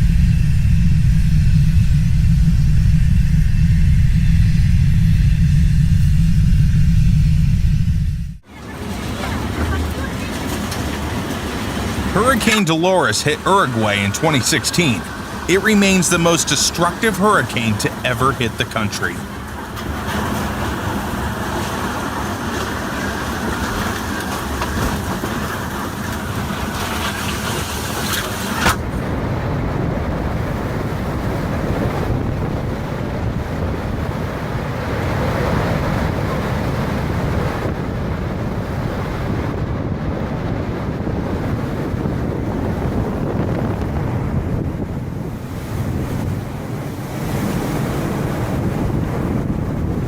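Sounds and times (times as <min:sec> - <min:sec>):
strong wind on microphone: 0:00.0 - 0:09.0, 0:28.8 - 0:50.0.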